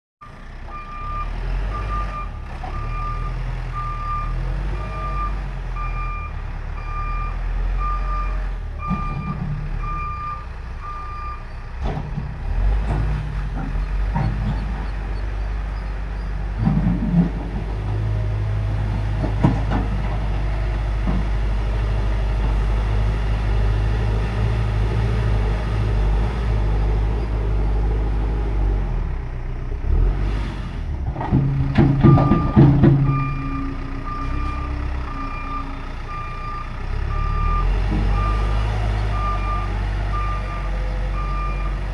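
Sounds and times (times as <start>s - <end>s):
diesel engine running: 0.2s - 41.9s
reversing alarm beeping: 0.7s - 11.5s, 32.0s - 41.8s
short knocks: 31.2s - 33.4s.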